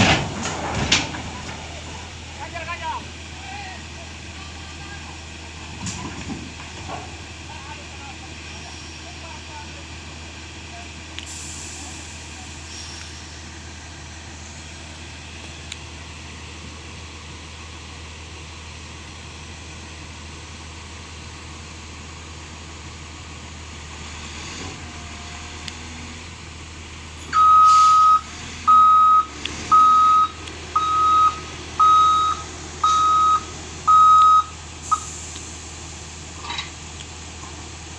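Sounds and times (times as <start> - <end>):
truck engine humming: 0.0 - 37.9
reversing alarm beeps: 27.3 - 35.1.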